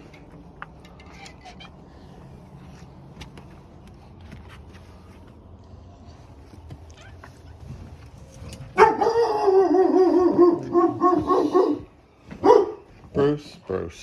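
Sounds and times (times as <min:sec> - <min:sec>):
dog yelp: 0:08.8 - 0:12.8.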